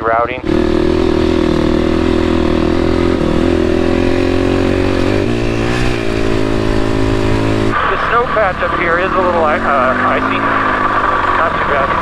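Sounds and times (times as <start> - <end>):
dirt bike engine under throttle: 0.4 - 12.0.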